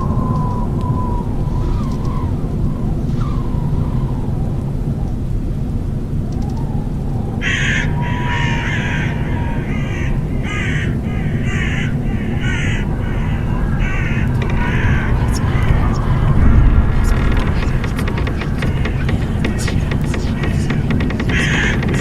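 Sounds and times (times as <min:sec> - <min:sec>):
low rumble of thunder: 0:00.0 - 0:22.0
bird cawing: 0:07.4 - 0:22.0.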